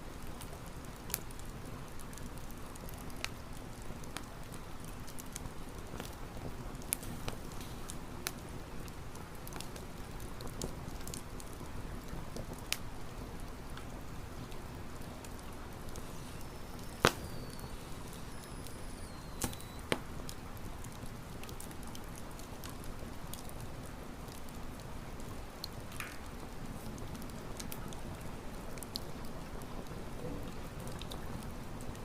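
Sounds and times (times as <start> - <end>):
campfire crackling: 0.0 - 32.0
sharp fire pops: 15.8 - 20.4.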